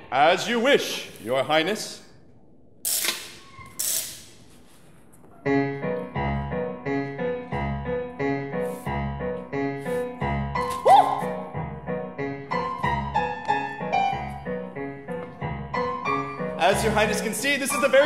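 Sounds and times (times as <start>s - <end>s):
piano playing repeating notes: 5.4s - 18.0s.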